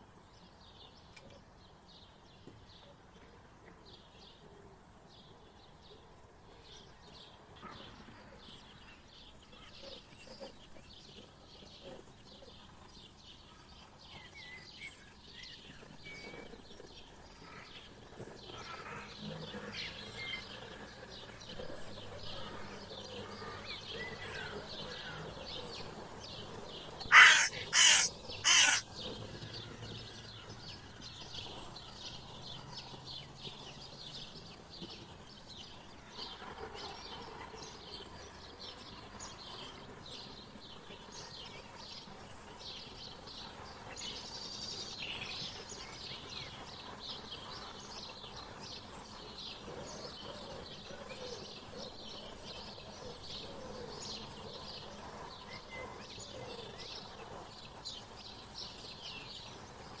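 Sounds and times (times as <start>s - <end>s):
birds chirping: 23.4s - 32.2s
lower gliding bird calls: 27.0s - 28.9s.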